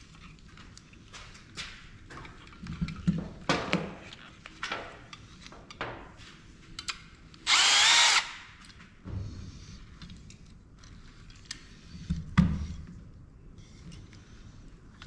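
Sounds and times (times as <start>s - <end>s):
power drill whining: 7.4s - 8.4s.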